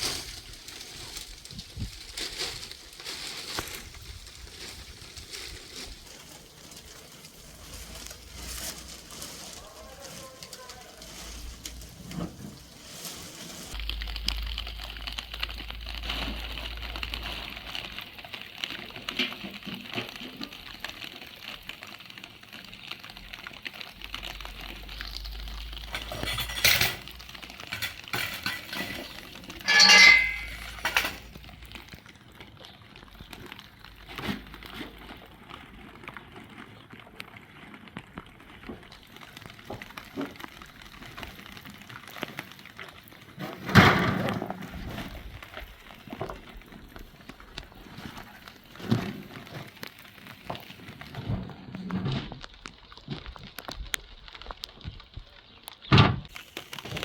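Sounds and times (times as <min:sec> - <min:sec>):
dishes and utensils clinking: 0:25.9 - 0:31.3.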